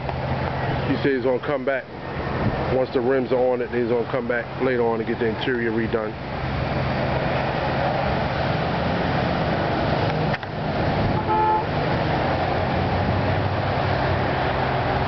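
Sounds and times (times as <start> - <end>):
traffic noise with low hum: 0.0 - 15.0
car horn toot: 11.1 - 11.8.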